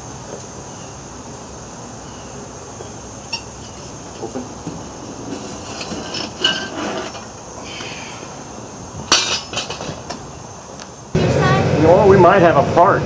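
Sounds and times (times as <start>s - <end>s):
metal clinks and knocks: 9.1s - 10.2s.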